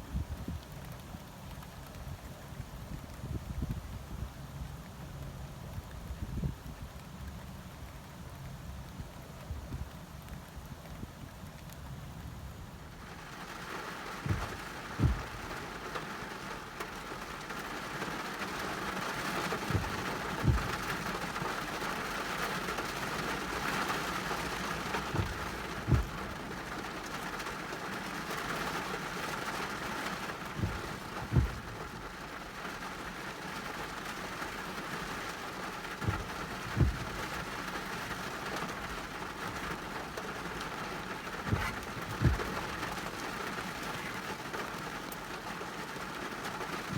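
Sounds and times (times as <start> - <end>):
heavy rain falling: 7.0 - 46.9
short low thumps: 14.2 - 15.6, 19.4 - 21.2, 25.0 - 26.4, 30.5 - 32.2, 36.0 - 37.4, 41.4 - 43.0.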